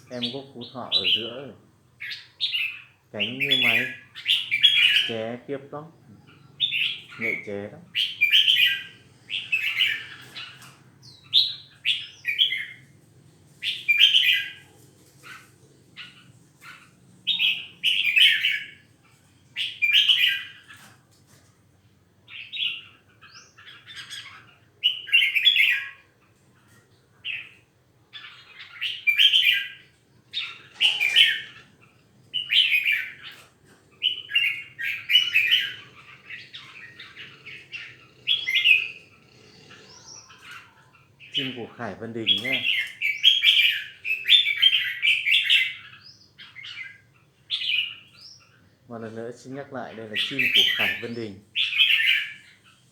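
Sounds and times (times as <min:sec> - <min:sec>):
songbird singing short phrases: 0:00.0 - 0:12.8, 0:27.2 - 0:52.5.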